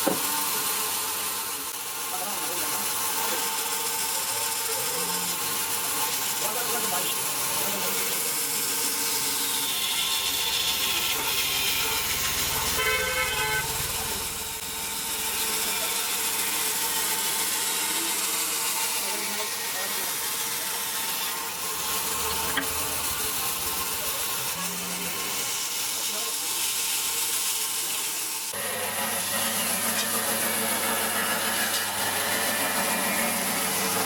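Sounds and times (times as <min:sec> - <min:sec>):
saw hissing: 0:00.0 - 0:34.0
sawmill machinery humming: 0:00.0 - 0:34.0
short pitched toot: 0:11.0 - 0:14.4.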